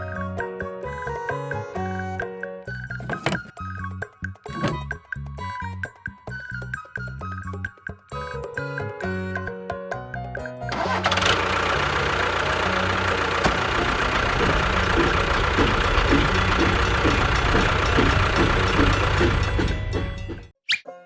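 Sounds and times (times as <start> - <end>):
engine running steadily: 10.7 - 20.5.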